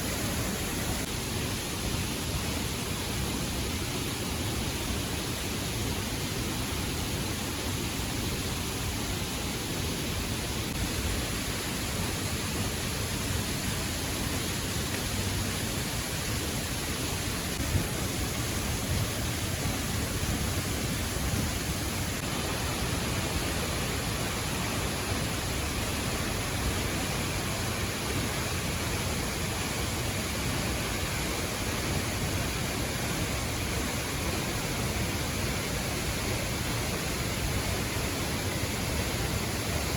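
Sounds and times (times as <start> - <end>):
waterfall rushing: 10.2 - 39.9.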